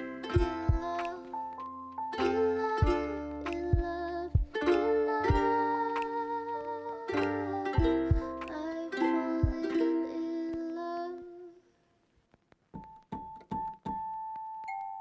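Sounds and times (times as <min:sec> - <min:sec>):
soft keyboard chords: 0:00.0 - 0:08.8.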